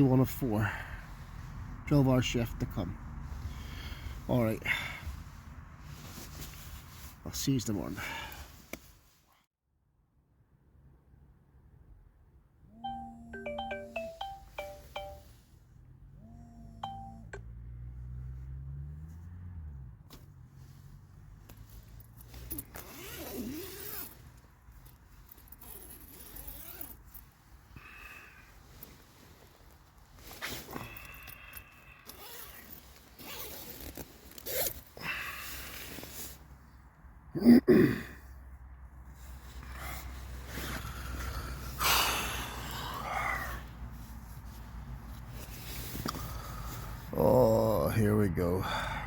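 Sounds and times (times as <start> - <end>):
electronic chime melody: 12.8 - 15.3, 16.8 - 17.4
zip being pulled: 21.9 - 24.2, 25.4 - 27.2, 32.0 - 35.0.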